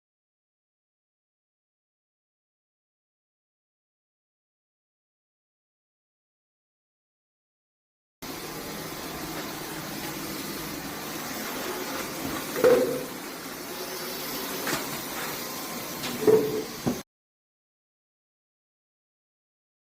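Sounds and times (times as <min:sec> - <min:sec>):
cordless vacuum running: 0:08.2 - 0:17.0.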